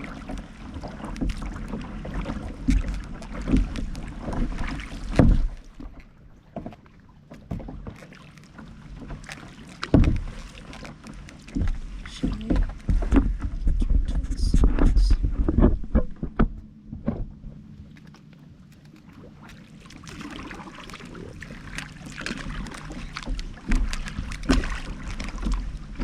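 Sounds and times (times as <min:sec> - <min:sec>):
paddle splashes: 0:00.0 - 0:26.0
water sloshing: 0:00.0 - 0:26.0
wind rumble on microphone: 0:11.5 - 0:17.8.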